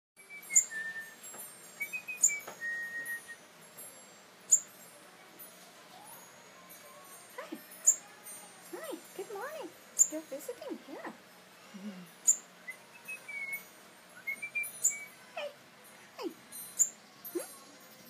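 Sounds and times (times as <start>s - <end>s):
songbird high chirps: 0.2s - 3.4s, 4.5s - 4.7s, 8.8s - 10.5s, 12.2s - 15.4s, 16.4s - 18.0s.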